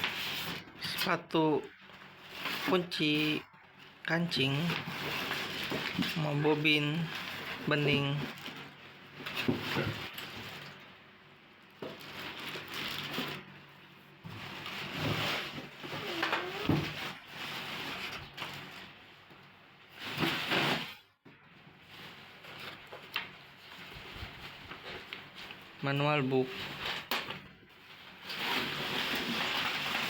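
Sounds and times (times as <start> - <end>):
packaging rustling: 1.7 - 6.2, 11.8 - 13.6, 21.8 - 25.8.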